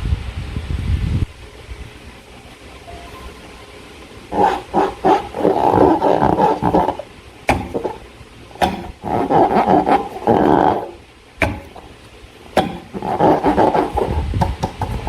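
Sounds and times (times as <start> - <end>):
rubber balloon rasping: 4.3 - 15.0
balloon snapping: 4.4 - 8.0, 8.6 - 15.0.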